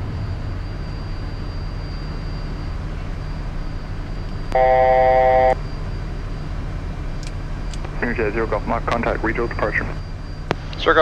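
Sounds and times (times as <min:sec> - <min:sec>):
loud electronic tone: 0:00.0 - 0:06.1
low jet cockpit noise: 0:00.0 - 0:11.0.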